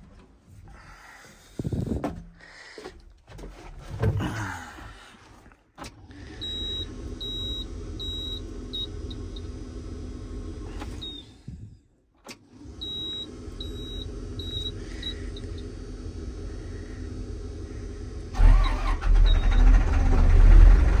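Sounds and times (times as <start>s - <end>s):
steady low hum: 13.5s - 18.4s.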